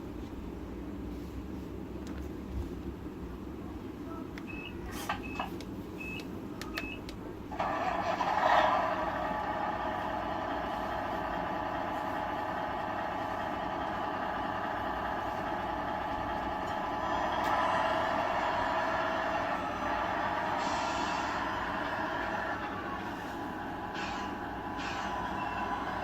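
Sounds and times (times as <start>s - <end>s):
tinny diesel engine sound effect: 7.5s - 26.0s.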